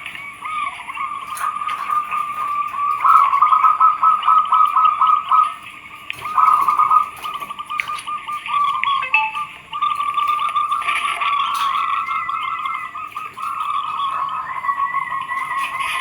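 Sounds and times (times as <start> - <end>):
doves cooing: 0.0 - 16.0.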